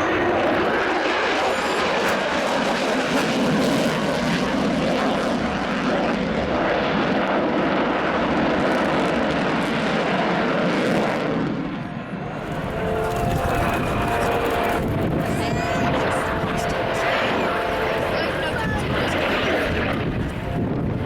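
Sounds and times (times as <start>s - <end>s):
aircraft engine roar: 0.0s - 21.0s.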